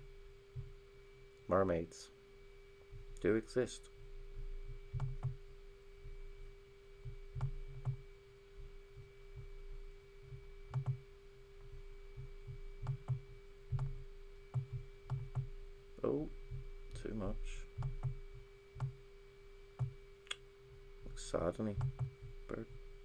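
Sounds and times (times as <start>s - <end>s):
steady electrical hum: 0.0s - 23.0s
computer mouse clicks: 5.0s - 5.4s, 7.4s - 8.0s, 10.7s - 11.0s, 12.8s - 15.5s, 21.8s - 22.2s.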